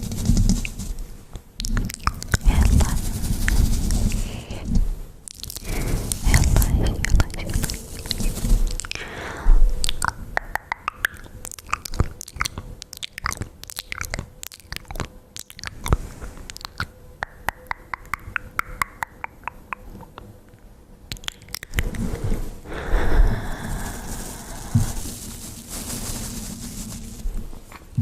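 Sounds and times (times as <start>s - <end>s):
wet mouth clicks and smacks: 1.6s - 2.6s, 5.2s - 9.0s, 9.8s - 20.3s, 21.1s - 22.1s
soft hiss: 21.8s - 28.0s.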